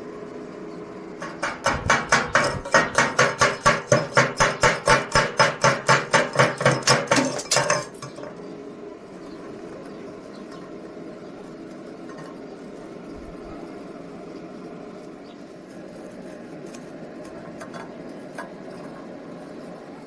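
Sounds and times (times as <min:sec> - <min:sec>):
steady low hum: 0:00.0 - 0:20.0
hammer striking metal: 0:01.2 - 0:08.0.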